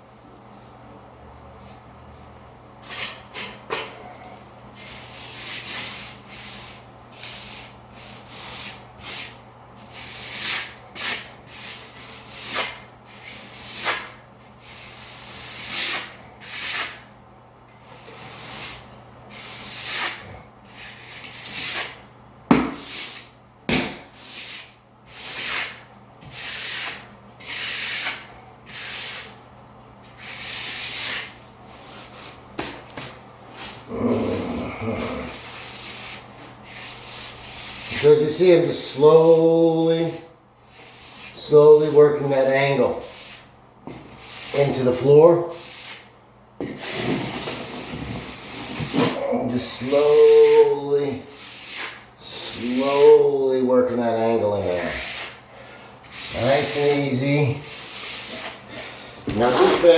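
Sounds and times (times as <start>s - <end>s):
float scraping over mortar: 59.3s - 59.9s.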